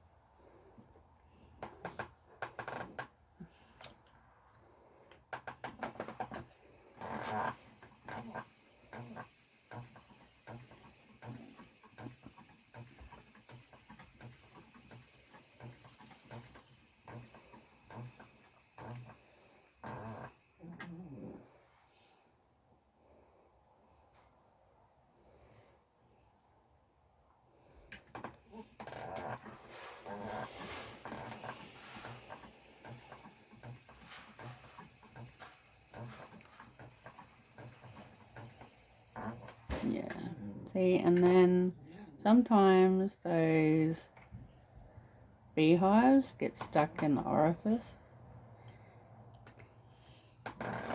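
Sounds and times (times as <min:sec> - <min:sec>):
spinning wheel knocking: 0:05.4 - 0:20.7, 0:28.2 - 0:40.3.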